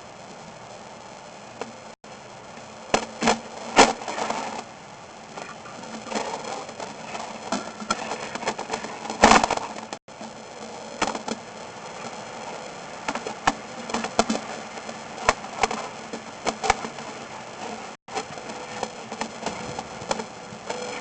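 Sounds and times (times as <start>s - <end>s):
faint electrical hum and whine: 0.0s - 21.0s
steady hiss: 0.0s - 21.0s
irregular clicks and knocks: 18.1s - 21.0s.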